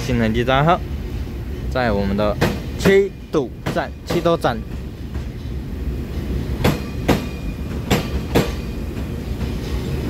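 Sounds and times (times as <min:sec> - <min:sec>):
train rumbling past: 0:00.0 - 0:10.0.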